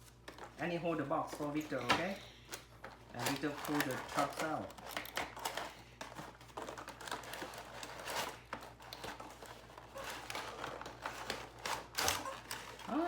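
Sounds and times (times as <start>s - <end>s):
toy packaging rustling and crinkling: 0.0s - 13.0s.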